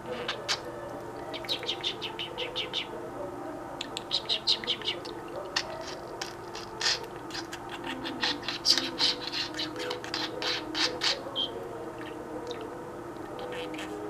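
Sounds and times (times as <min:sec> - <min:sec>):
pet bird chattering chirps: 0:03.8 - 0:12.6.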